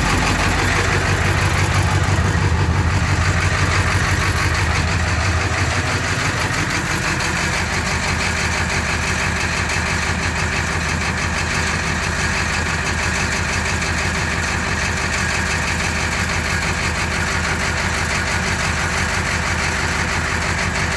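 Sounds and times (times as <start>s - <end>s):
diesel engine idling with clatter: 0.0s - 20.9s.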